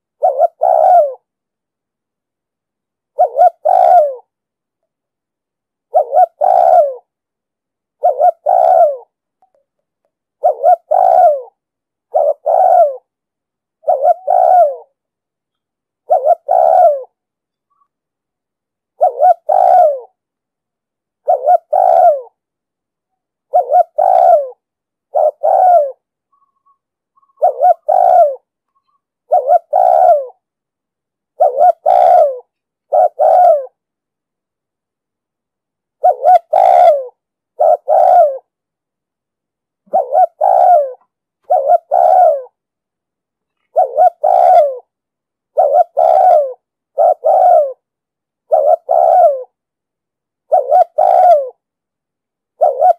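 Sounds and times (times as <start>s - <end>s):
dove cooing: 0.0s - 1.3s, 3.1s - 4.3s, 5.9s - 7.1s, 8.0s - 9.2s, 10.4s - 13.1s, 13.8s - 15.0s, 16.0s - 17.9s, 19.0s - 20.2s, 21.2s - 22.4s, 23.5s - 30.4s, 31.4s - 33.8s, 36.0s - 38.5s, 39.9s - 42.6s, 43.5s - 44.9s, 45.5s - 49.6s, 50.4s - 51.6s, 52.5s - 52.9s.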